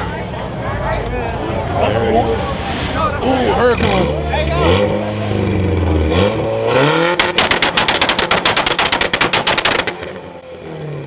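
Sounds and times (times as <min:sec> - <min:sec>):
rapid exhaust bangs: 0:07.0 - 0:10.2.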